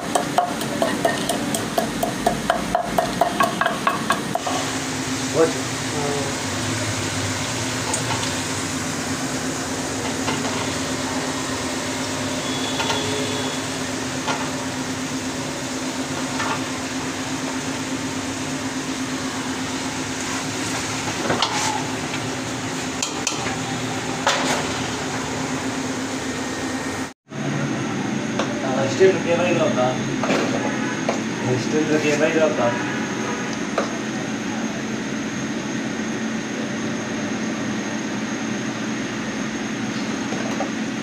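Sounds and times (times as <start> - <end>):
food sizzling in a pot: 2.4 - 26.3.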